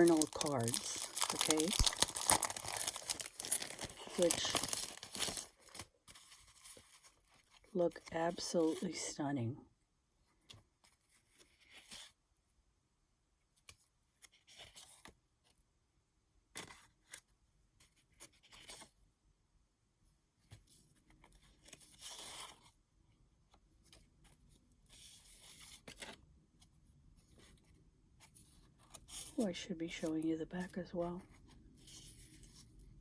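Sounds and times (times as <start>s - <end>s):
cards rustling and shuffling: 0.0s - 7.7s, 17.9s - 18.9s, 23.7s - 33.0s.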